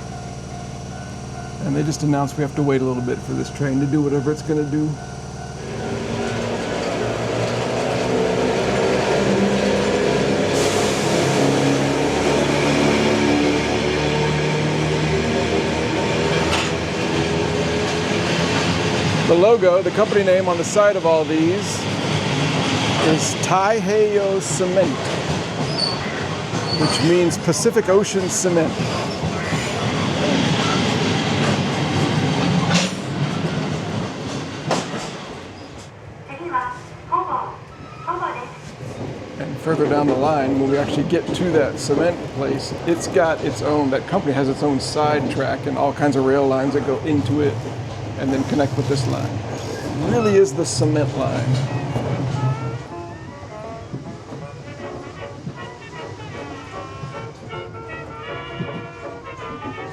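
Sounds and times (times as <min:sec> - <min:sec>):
freight train rumbling on rails: 0:00.0 - 0:59.9.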